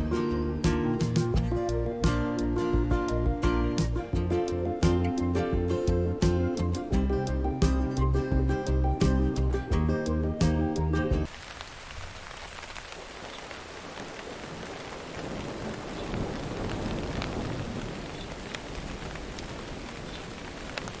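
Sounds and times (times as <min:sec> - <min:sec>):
background music: 0:00.0 - 0:11.3
patter of falling water: 0:11.2 - 0:21.0.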